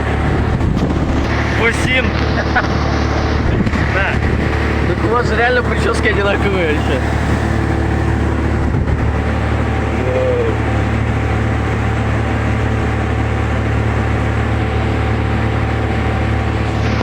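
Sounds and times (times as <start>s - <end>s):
vehicle rumbling: 0.0s - 17.0s
brief voice-like sound: 9.9s - 10.7s.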